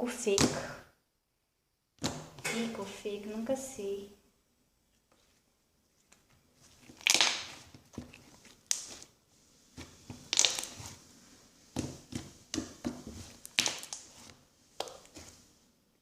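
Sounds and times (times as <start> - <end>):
slime squelching by hand: 5.0 - 15.6.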